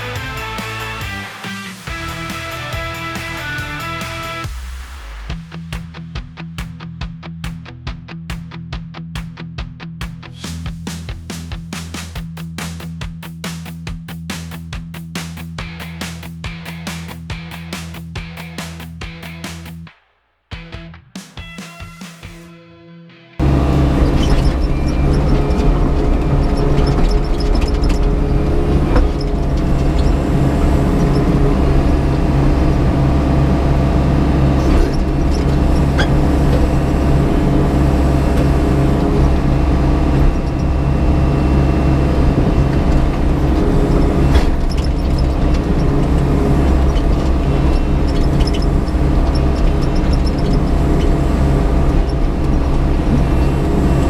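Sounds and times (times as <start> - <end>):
excavator diesel engine running: 0.0 - 4.4, 23.4 - 54.0.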